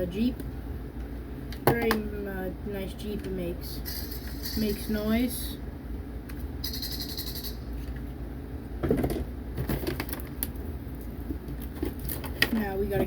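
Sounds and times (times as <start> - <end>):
toy sound effect from small speaker: 6.6 - 7.6.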